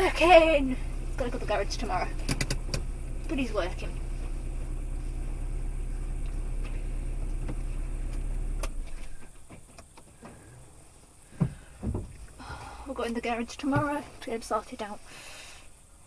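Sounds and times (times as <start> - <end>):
car engine idling: 0.0 - 16.0
thump: 11.3 - 12.2.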